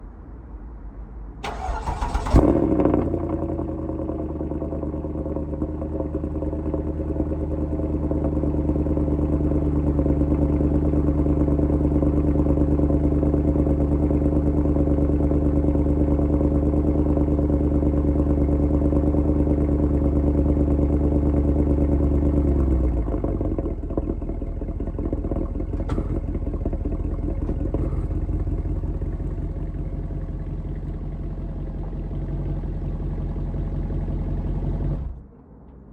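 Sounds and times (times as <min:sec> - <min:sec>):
engine cranking: 0:01.4 - 0:02.7
car engine idling: 0:01.4 - 0:35.3.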